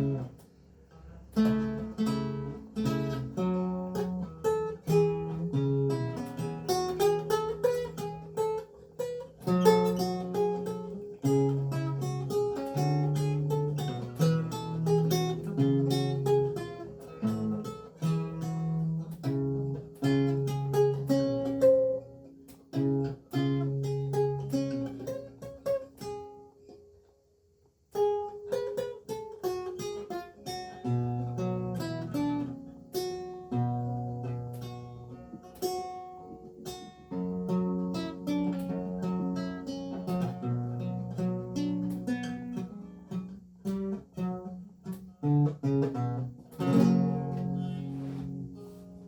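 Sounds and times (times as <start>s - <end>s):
lute plucked: 0.0s - 49.0s.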